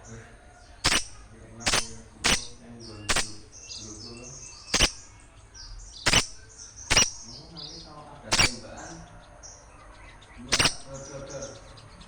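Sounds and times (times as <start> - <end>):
small birds twittering: 0.0 - 12.0
loud sharp clicks: 0.8 - 3.7, 4.7 - 5.3, 6.0 - 7.3, 8.3 - 8.8, 10.5 - 11.0.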